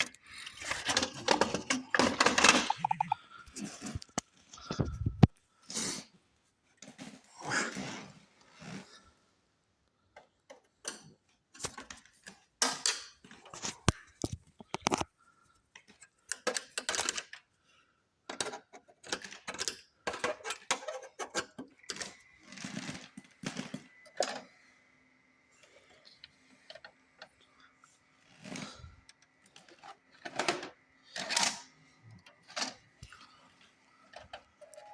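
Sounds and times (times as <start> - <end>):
plastic and metal parts rattling: 0.0 - 5.3, 15.8 - 17.5, 18.3 - 24.5, 28.2 - 33.4.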